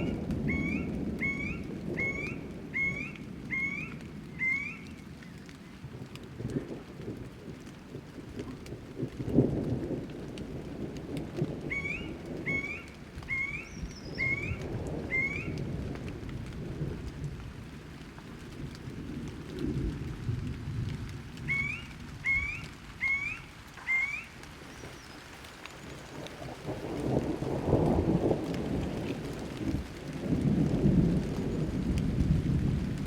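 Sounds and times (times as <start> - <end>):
low rolling thunder: 0.0 - 23.4, 25.8 - 33.0
rain: 0.0 - 33.0
bird rising call note: 21.5 - 24.3.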